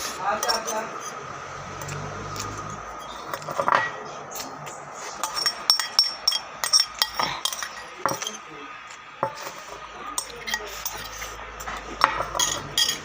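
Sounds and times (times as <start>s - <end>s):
cutlery clinking on a plate: 0.0s - 1.2s, 3.0s - 4.0s, 5.2s - 8.4s, 10.2s - 13.0s.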